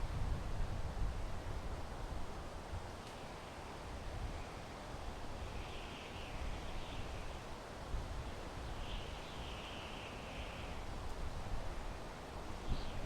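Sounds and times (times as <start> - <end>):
wind through pine trees: 0.0 - 13.0.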